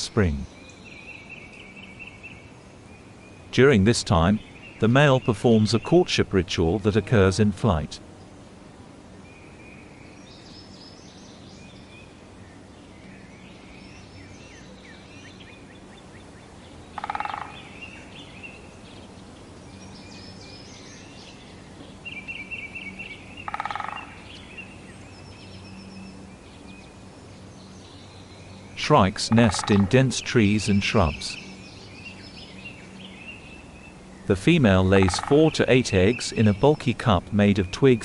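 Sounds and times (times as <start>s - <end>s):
birds chirping and trilling: 0.0s - 8.5s, 9.1s - 38.0s
loud harsh bird calls: 16.7s - 38.0s.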